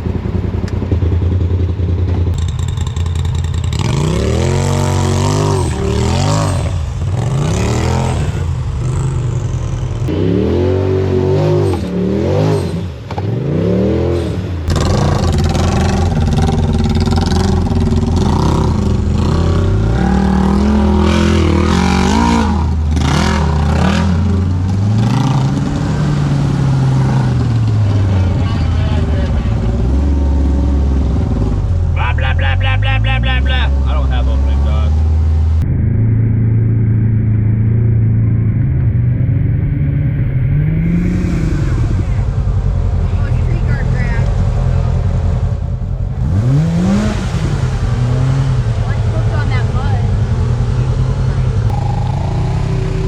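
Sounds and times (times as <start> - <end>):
engine revving under load: 2.3 - 53.0.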